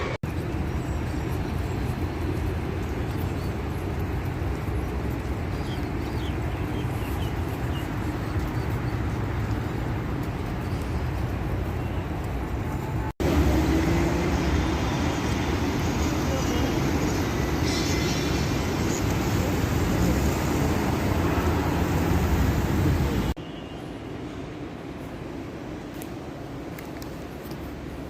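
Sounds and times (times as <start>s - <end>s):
road traffic rumble: 0.0s - 28.0s
vehicle engine rising: 13.2s - 16.0s.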